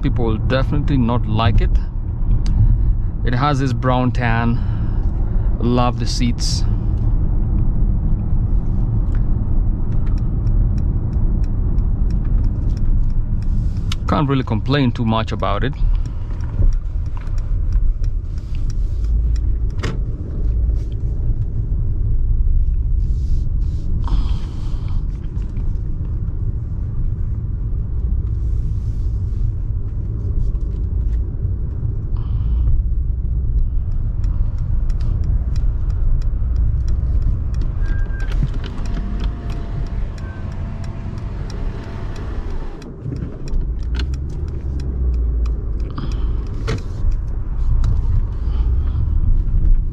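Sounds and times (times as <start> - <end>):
car engine rumble: 0.0 - 49.9
road noise: 0.0 - 49.9
faint clicks: 29.8 - 48.4.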